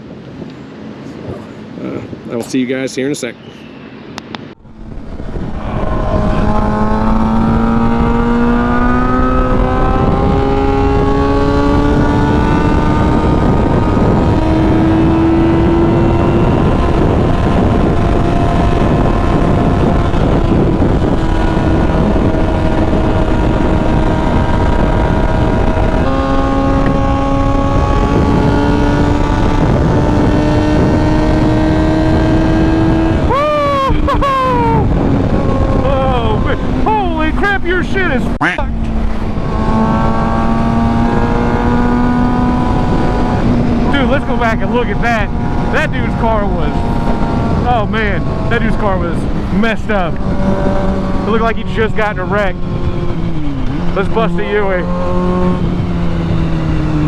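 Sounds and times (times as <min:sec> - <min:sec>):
wind and road noise: 0:00.0 - 0:57.0
vehicle engine under load: 0:34.0 - 0:57.0.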